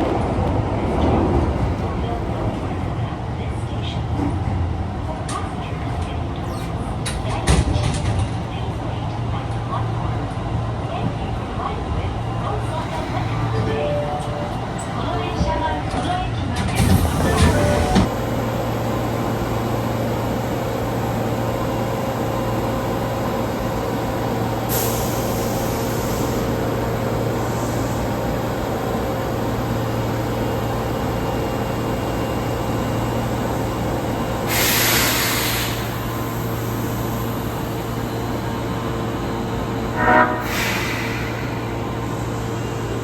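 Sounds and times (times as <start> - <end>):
subway train equipment humming: 0.0 - 43.0
pneumatic air hiss: 34.5 - 36.0, 40.4 - 41.8.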